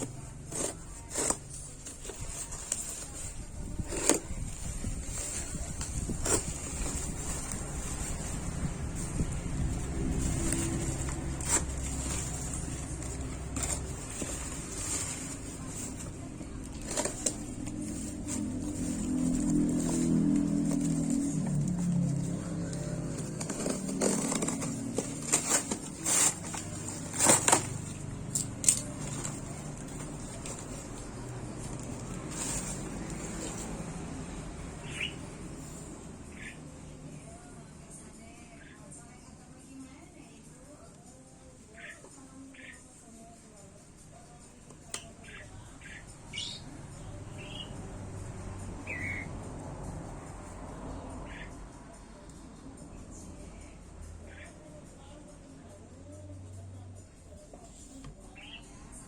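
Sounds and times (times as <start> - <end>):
packaging rustling and knocking: 9.7 - 22.1, 23.0 - 28.0, 28.6 - 33.8.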